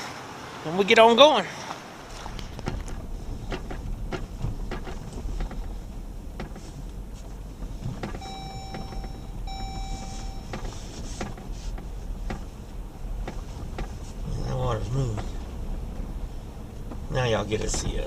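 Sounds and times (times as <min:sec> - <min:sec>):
low steady rumble: 0:01.8 - 0:18.0
electronic warning chime: 0:08.2 - 0:10.6.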